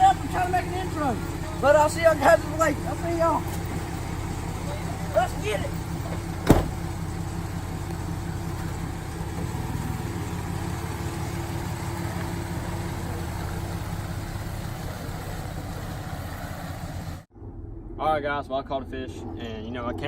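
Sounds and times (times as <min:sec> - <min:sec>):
truck engine humming: 0:00.0 - 0:20.0
sharp thump: 0:06.1 - 0:07.0.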